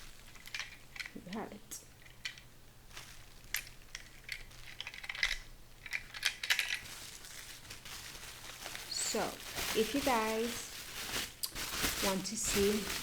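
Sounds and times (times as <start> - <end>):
plastic parts clicking: 0.2 - 2.5, 3.4 - 6.9.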